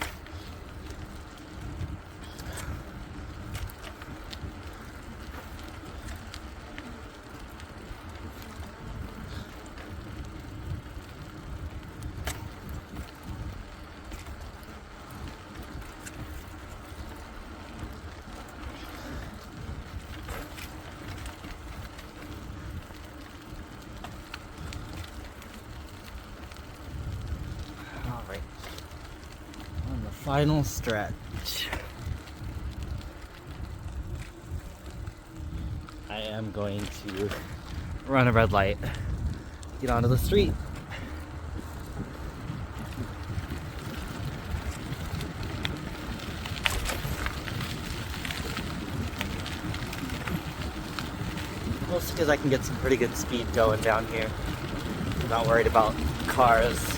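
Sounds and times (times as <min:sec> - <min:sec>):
bicycle tyre rumble: 0:00.0 - 0:56.9
bike ticks and rattles: 0:00.0 - 0:56.9
wind: 0:00.0 - 0:56.9
sharp clicks and rattles: 0:35.5 - 0:56.9.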